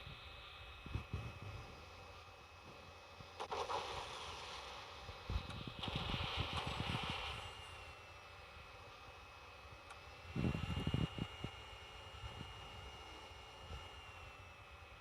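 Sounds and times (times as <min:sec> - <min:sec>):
distant fighter jet whine: 0:00.0 - 0:15.0
wind rumbling on microphone: 0:00.8 - 0:01.8, 0:05.2 - 0:07.6, 0:10.3 - 0:11.6.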